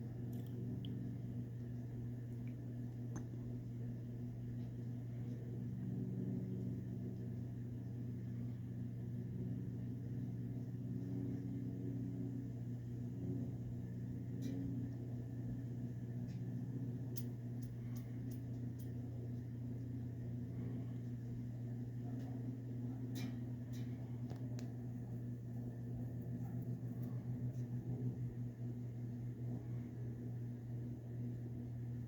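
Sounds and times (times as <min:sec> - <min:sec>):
ceiling fan motor humming: 0:00.0 - 0:32.0
faint ticks: 0:17.1 - 0:19.4.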